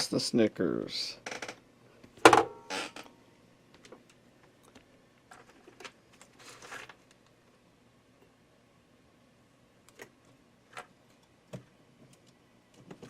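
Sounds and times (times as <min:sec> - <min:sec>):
rustle of handling: 0:05.3 - 0:07.2.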